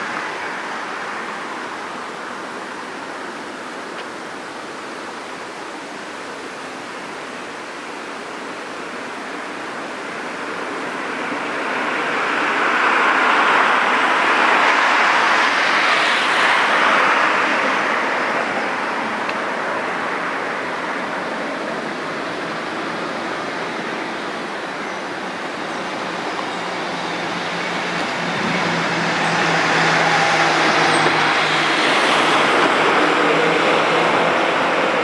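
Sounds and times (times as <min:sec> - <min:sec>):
passing vehicle rushing: 0:10.9 - 0:35.0.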